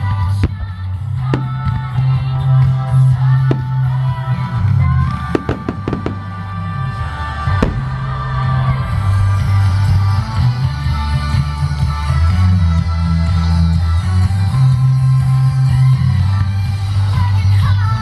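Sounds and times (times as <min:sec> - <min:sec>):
loud music with heavy bass: 0:00.0 - 0:18.0
fireworks bursting: 0:00.2 - 0:02.1, 0:03.2 - 0:10.1.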